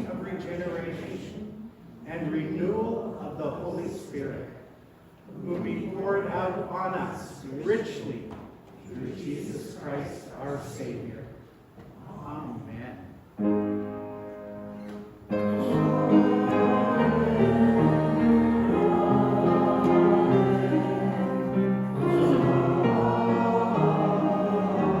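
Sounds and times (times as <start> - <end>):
church organ chords: 13.4 - 25.0
choir singing: 15.3 - 25.0.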